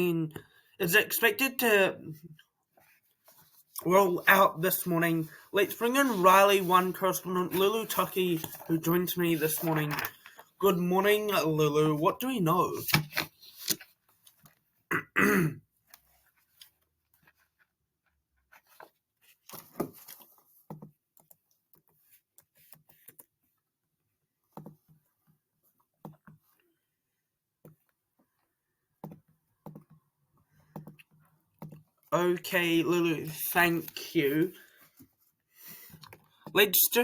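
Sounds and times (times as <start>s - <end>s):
throat clearing: 14.9s - 15.6s.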